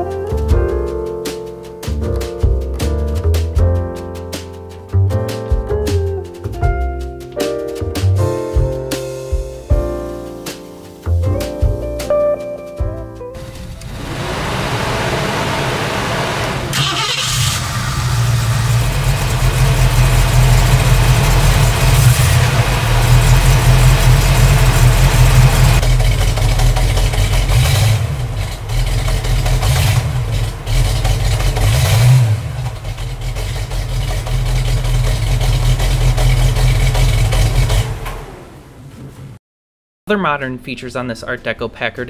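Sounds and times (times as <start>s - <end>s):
car engine idling and revving: 13.4s - 39.3s.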